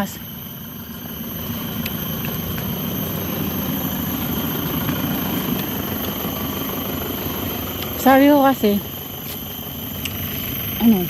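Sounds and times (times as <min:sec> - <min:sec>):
low engine-like rumble: 0:00.0 - 0:11.0.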